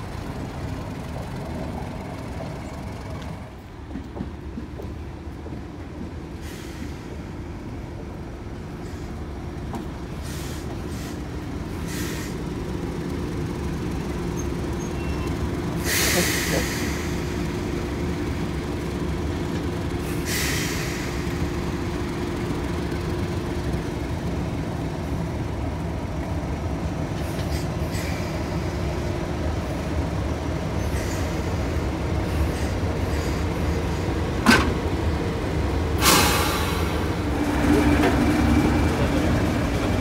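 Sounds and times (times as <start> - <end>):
train wheels rumbling on track: 0.0 - 40.0
brief hiss: 36.0 - 36.9.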